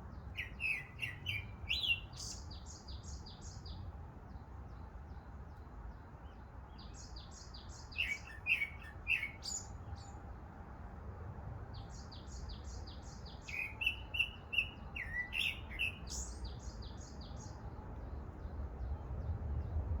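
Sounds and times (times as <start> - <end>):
songbirds singing: 0.0 - 20.0
steady low rumble: 18.4 - 20.0.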